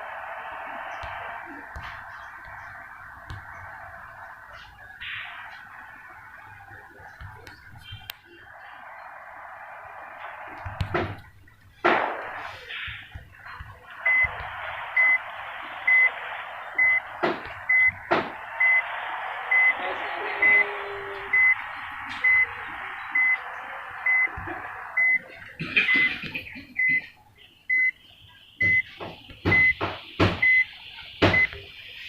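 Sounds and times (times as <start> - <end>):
steady hiss: 8.5 - 26.4.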